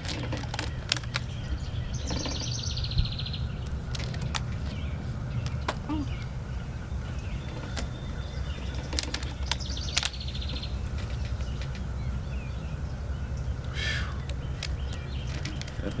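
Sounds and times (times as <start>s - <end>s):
sharp clicks: 0.0s - 1.4s, 7.4s - 11.9s, 13.6s - 16.0s
bird trill: 0.0s - 16.0s
birds chirping: 0.0s - 16.0s.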